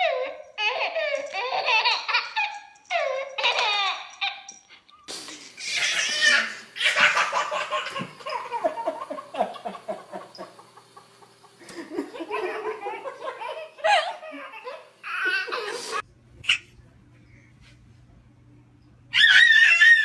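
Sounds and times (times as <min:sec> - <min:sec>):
hearty laughter: 0:06.9 - 0:15.9.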